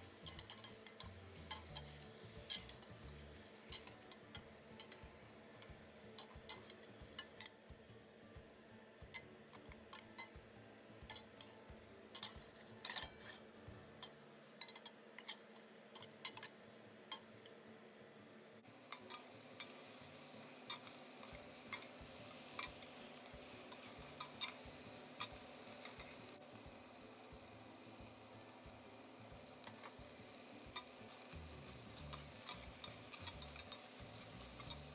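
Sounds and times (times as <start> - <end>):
faint frying hiss: 0.0 - 34.9.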